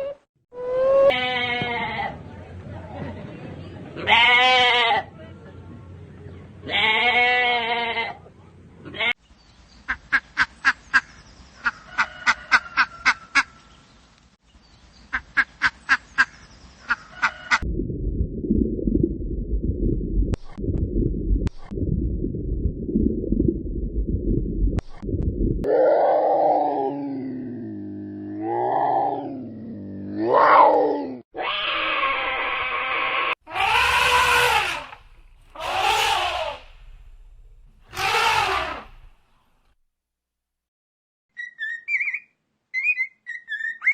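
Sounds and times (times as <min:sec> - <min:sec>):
farm animal calls: 0:33.5 - 0:39.1.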